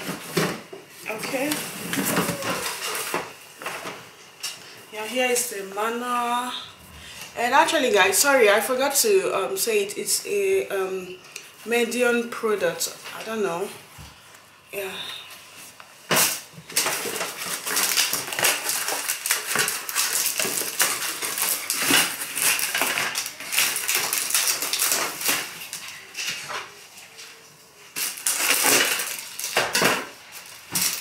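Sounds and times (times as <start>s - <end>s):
packaging crinkling and clattering: 0.0s - 4.0s, 16.1s - 31.0s.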